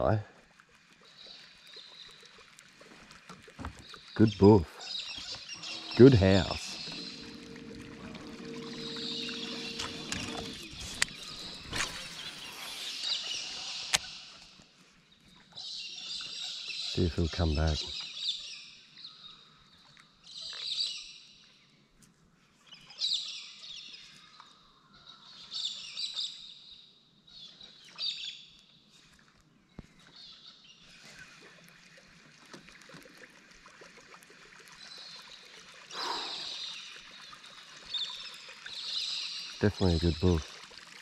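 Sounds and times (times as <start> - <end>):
bird calling: 4.2 - 14.4.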